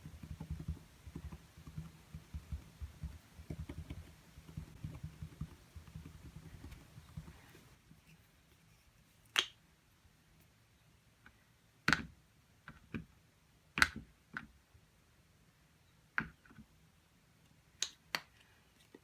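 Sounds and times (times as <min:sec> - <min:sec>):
painting tools tapping: 0:00.0 - 0:07.8.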